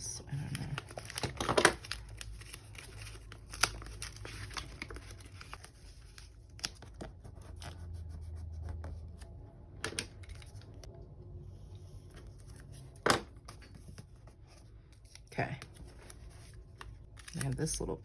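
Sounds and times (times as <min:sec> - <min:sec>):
paper rustling: 0:00.8 - 0:07.8.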